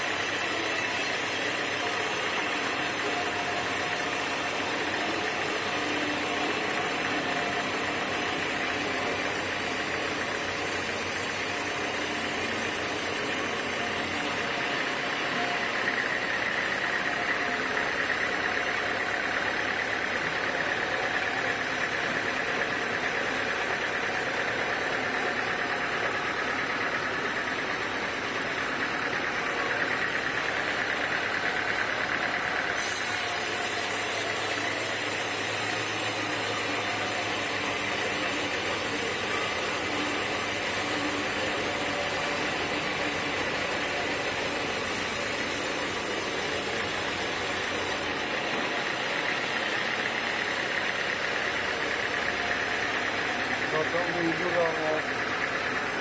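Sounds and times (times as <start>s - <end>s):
sawmill machinery running: 0.0s - 56.0s
high hiss: 32.7s - 48.2s.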